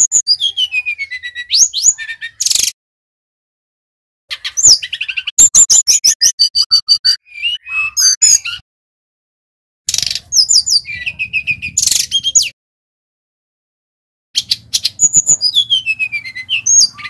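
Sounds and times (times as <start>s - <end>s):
flycatcher singing: 0.0s - 2.7s, 4.3s - 8.6s, 14.4s - 17.0s.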